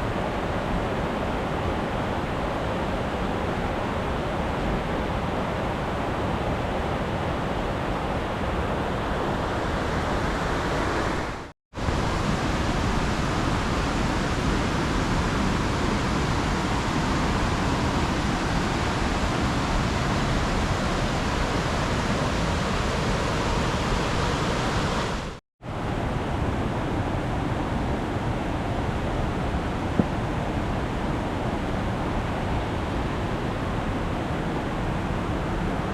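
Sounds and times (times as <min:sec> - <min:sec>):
rushing mountain stream: 0:00.0 - 0:35.9.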